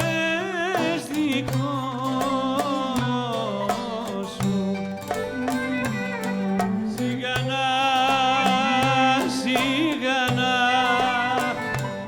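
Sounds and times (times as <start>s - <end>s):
plucked strokes: 0.0s - 12.0s
wavering melody line: 3.9s - 7.5s.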